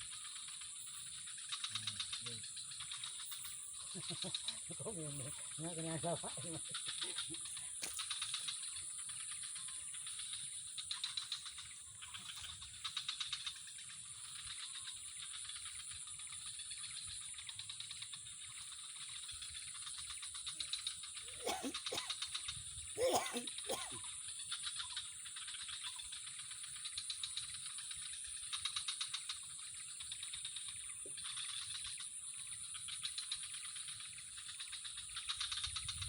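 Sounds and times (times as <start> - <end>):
insects trilling: 0.0 - 36.0
short lower calls: 23.0 - 24.0.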